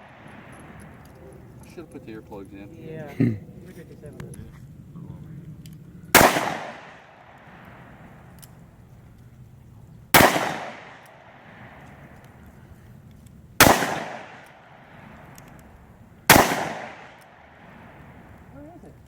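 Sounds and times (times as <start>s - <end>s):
handgun gunshots with echo: 6.1s - 7.8s, 10.2s - 11.6s, 13.6s - 15.4s, 16.3s - 17.7s.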